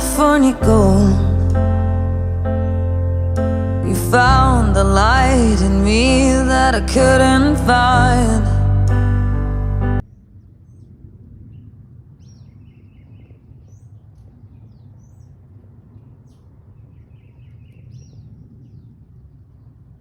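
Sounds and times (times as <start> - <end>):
low steady rumble: 0.0 - 12.2.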